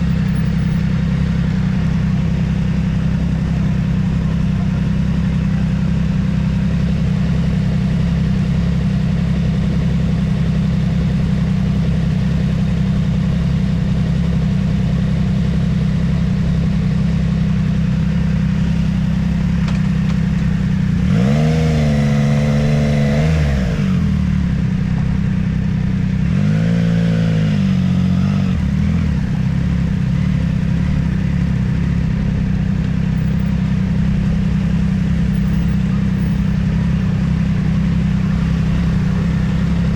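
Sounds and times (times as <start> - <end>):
motorcycle engine running: 0.0 - 39.9
second engine revving: 18.4 - 25.2, 26.0 - 39.9.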